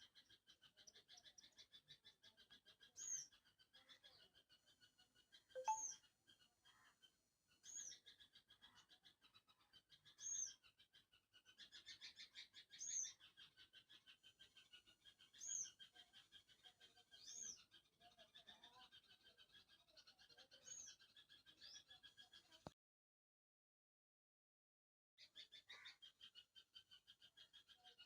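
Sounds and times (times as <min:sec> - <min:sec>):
short high chirp: 0:05.6 - 0:05.9.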